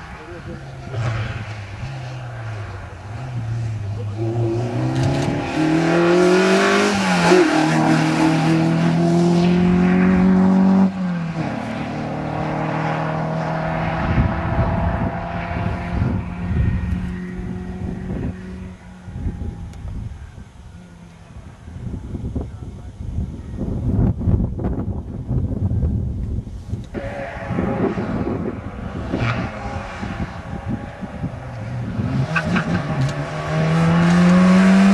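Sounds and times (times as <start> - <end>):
rally car engine revving: 0.0 - 19.9, 26.8 - 34.9.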